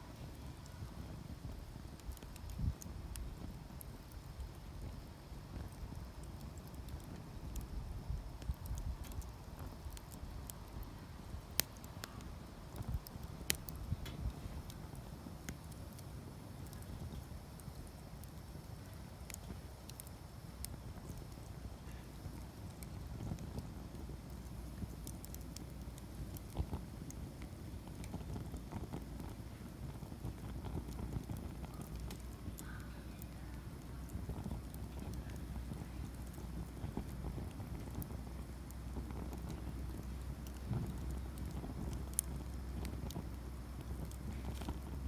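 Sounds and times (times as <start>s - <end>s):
campfire crackling and popping: 0.0s - 45.0s
low steady fire rumble: 0.0s - 45.0s.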